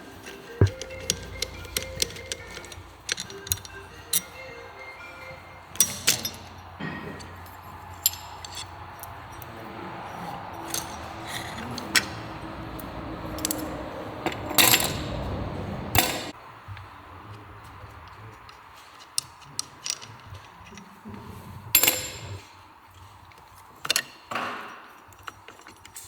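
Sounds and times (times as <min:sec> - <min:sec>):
metal clattering: 0:00.0 - 0:16.4
metallic clinks and clicks: 0:00.0 - 0:16.4, 0:18.3 - 0:20.9
faint background music: 0:00.0 - 0:23.8.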